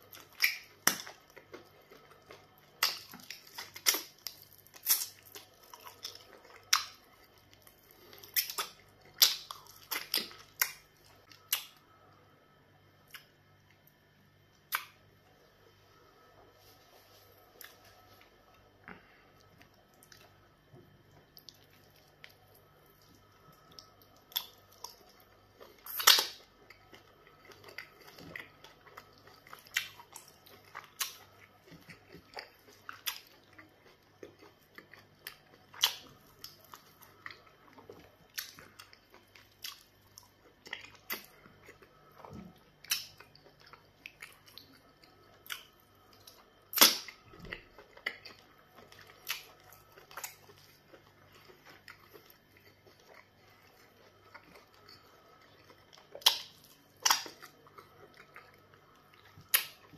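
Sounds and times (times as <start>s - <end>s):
wet chewing: 0.0s - 11.8s, 21.1s - 59.9s
lip smacks and sucks: 46.7s - 47.2s.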